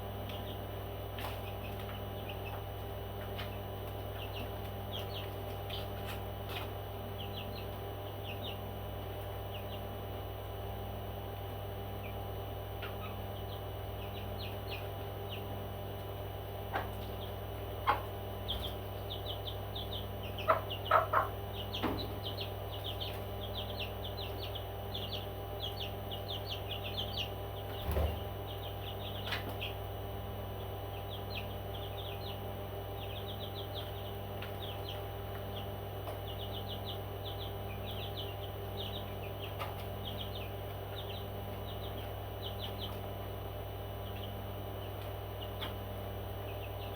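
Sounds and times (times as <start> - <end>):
parrots chirping: 17.9 - 29.8.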